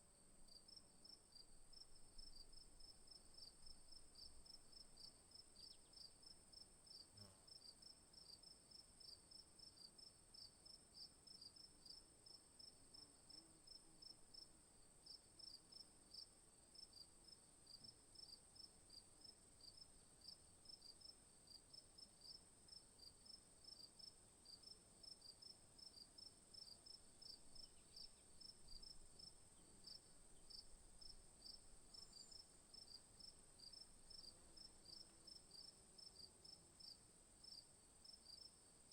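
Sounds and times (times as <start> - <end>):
insect chirping: 0.5 - 12.0, 22.2 - 38.9
insect drone: 22.2 - 38.9.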